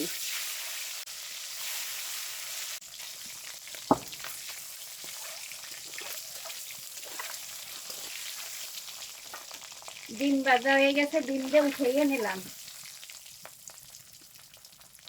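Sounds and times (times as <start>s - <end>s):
egg sizzling in hot oil: 0.0s - 15.0s
sharp knock: 3.9s - 4.2s.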